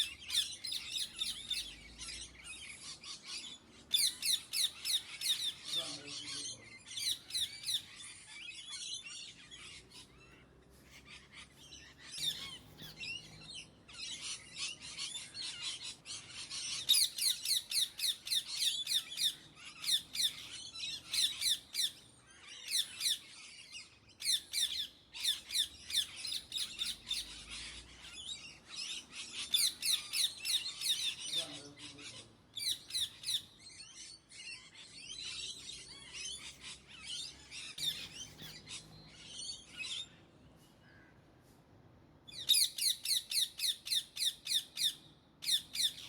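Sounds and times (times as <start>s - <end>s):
parakeets squawking: 0.0s - 21.4s, 24.6s - 40.2s.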